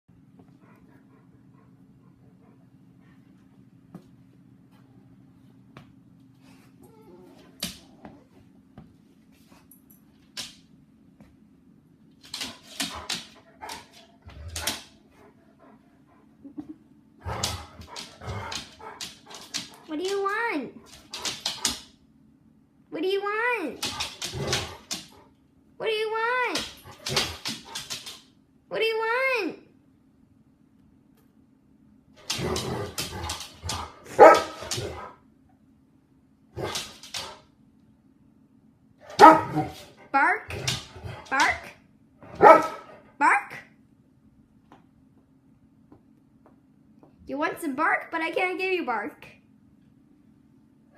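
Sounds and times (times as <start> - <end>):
dog barking: 34.1 - 34.7, 39.1 - 39.7, 42.3 - 42.9.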